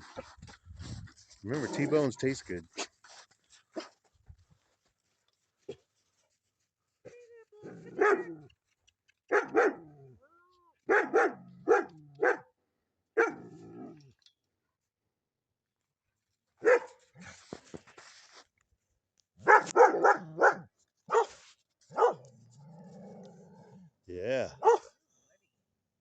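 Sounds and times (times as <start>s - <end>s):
dog barking: 7.7s - 8.4s, 9.3s - 10.1s, 10.8s - 12.5s, 13.2s - 13.5s, 16.6s - 17.0s, 19.4s - 22.3s, 24.5s - 25.0s.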